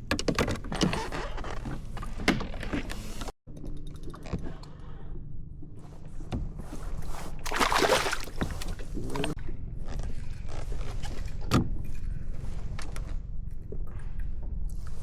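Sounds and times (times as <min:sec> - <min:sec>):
rustling or splashing: 0:06.7 - 0:09.4.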